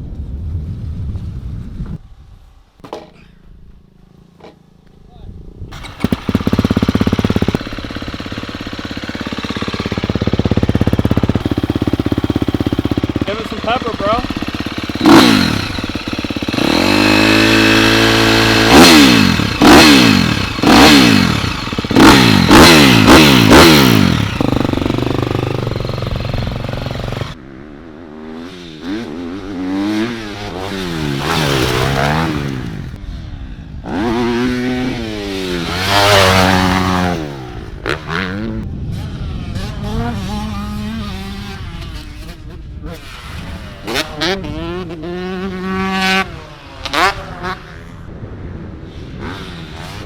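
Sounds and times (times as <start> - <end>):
pit bike engine revving: 5.7 - 27.5, 28.1 - 33.0, 33.9 - 38.6.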